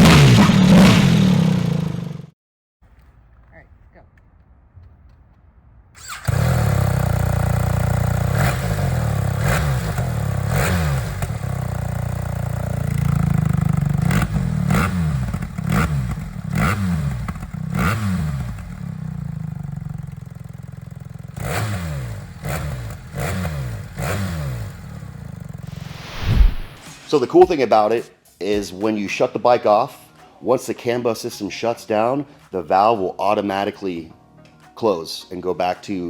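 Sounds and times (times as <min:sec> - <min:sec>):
motorcycle engine revving: 0:00.0 - 0:02.4, 0:06.0 - 0:26.9.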